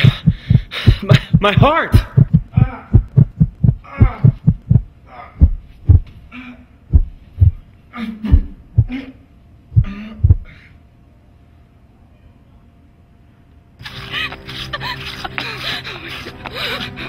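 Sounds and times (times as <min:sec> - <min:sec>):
heartbeat: 0:00.0 - 0:06.1, 0:06.9 - 0:07.7, 0:08.3 - 0:09.0, 0:09.7 - 0:10.5
man groaning and gasping: 0:02.0 - 0:05.6, 0:09.8 - 0:10.6.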